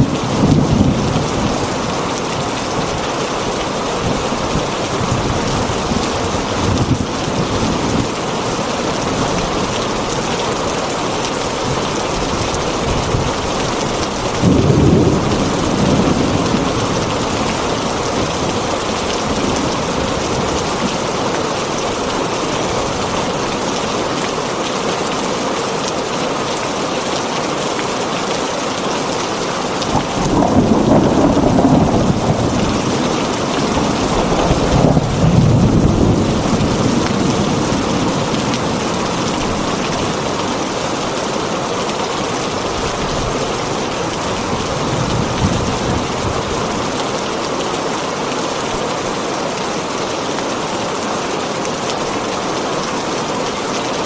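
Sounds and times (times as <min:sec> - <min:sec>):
heavy rain on a tin roof: 0:00.0 - 0:54.0
thunder rolling: 0:12.2 - 0:20.6, 0:29.8 - 0:40.8.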